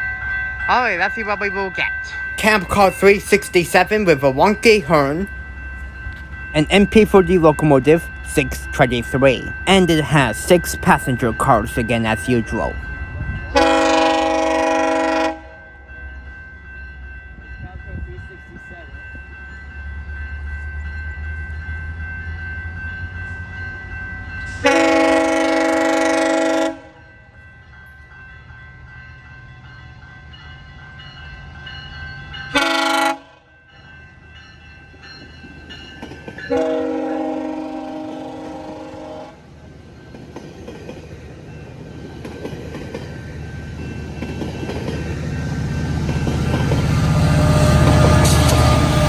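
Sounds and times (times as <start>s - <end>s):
diesel locomotive engine: 0.0s - 49.0s
train rumbling past: 0.0s - 49.0s
train horn blast: 13.6s - 15.7s, 24.6s - 27.0s, 32.6s - 33.5s, 36.5s - 39.4s, 47.1s - 49.0s
train wheels clickety-clack: 35.2s - 36.8s, 40.1s - 49.0s.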